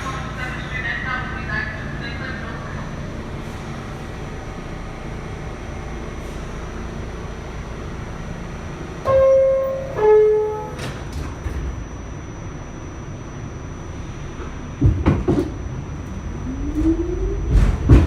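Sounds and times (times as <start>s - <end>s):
subway car hum: 0.0s - 18.0s
subway doors closing knocks: 9.0s - 11.8s, 14.6s - 15.6s, 16.7s - 18.0s
two-tone descending door chime: 9.1s - 11.0s.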